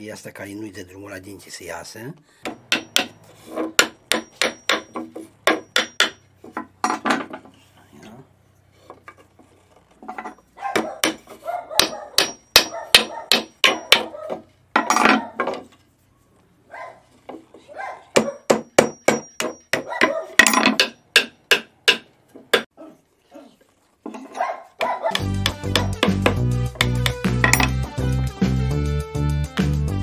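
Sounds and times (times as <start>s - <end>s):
hammer tapping wood: 2.5s - 3.2s, 3.8s - 6.7s, 10.8s - 14.4s, 18.2s - 22.7s, 24.8s - 27.7s.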